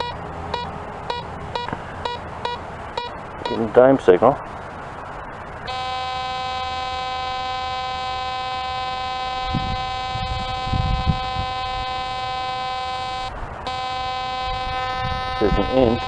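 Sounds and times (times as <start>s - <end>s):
metal detector buzzy tone: 0.0s - 3.8s, 5.6s - 16.0s.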